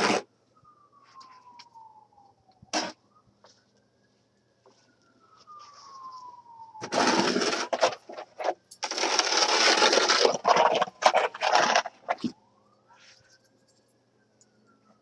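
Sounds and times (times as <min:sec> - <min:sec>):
snow shovel scraping pavement: 0:00.0 - 0:00.2, 0:06.9 - 0:12.1.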